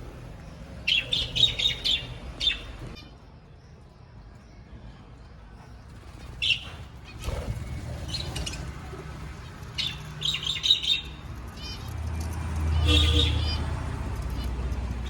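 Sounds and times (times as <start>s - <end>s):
budgerigars chirping: 0.9s - 3.0s, 9.8s - 11.9s.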